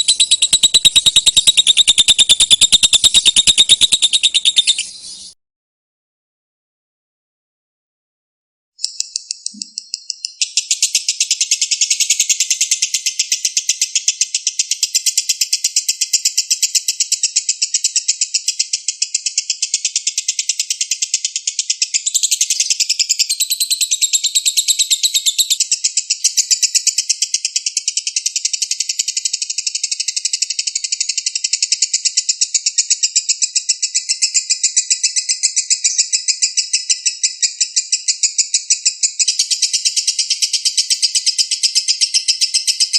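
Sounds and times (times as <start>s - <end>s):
lovebird chattering trill: 0.0s - 5.4s.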